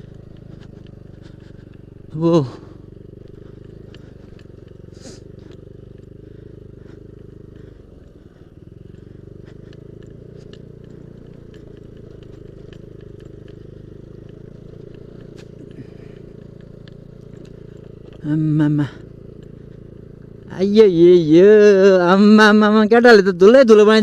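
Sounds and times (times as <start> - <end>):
gravel ticking: 0.0 - 24.0
scooter engine running: 0.0 - 24.0.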